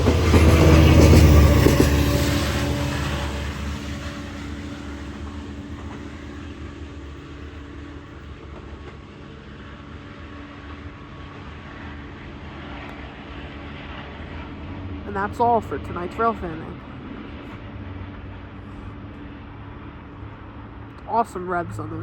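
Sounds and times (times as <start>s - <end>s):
diesel locomotive revving: 0.0s - 9.6s.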